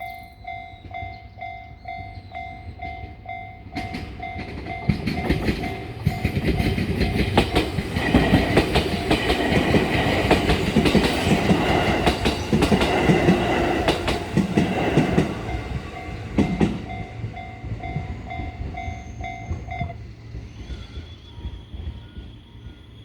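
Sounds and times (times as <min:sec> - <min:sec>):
level crossing alarm bell: 0:00.0 - 0:07.4, 0:15.4 - 0:20.0
train wheels clacking: 0:00.4 - 0:23.0.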